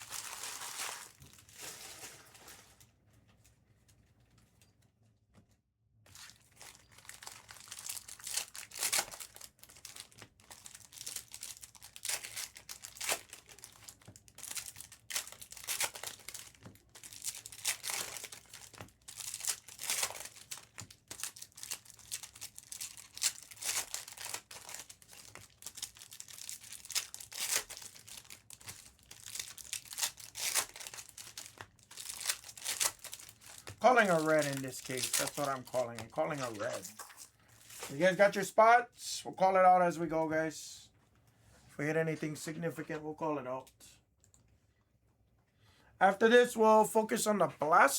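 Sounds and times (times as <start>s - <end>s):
plastic wrapping tearing and crinkling: 0.0s - 2.9s, 6.1s - 38.0s.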